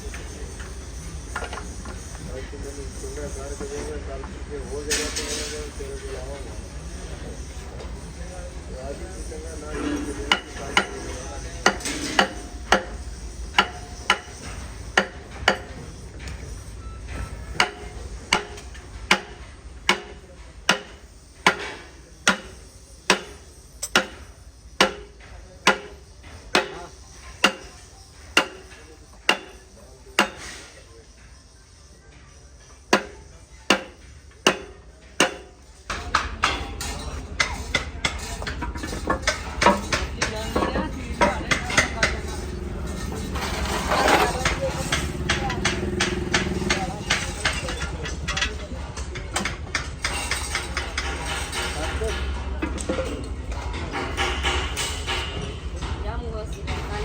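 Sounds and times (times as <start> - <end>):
hammer blows on metal: 9.0 - 30.8, 32.9 - 53.0.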